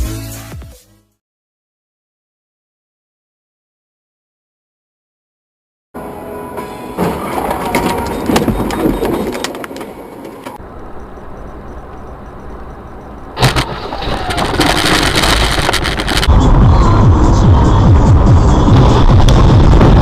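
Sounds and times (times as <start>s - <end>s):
vehicle and road noise: 6.0s - 20.0s.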